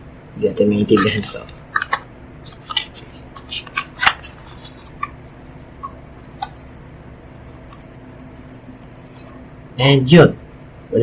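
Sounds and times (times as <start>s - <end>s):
packaging crinkling: 0.9s - 5.3s.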